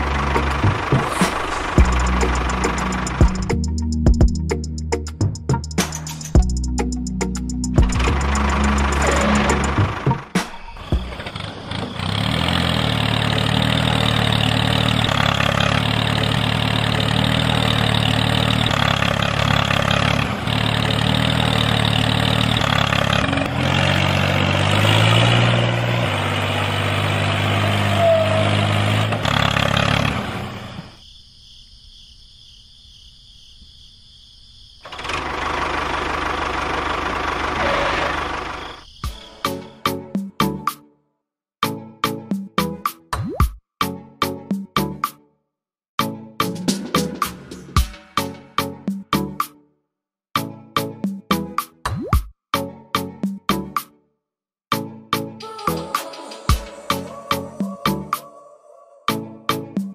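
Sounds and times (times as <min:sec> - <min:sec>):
tractor engine chugging: 0:00.0 - 0:04.4, 0:06.4 - 0:30.9, 0:34.9 - 0:39.3.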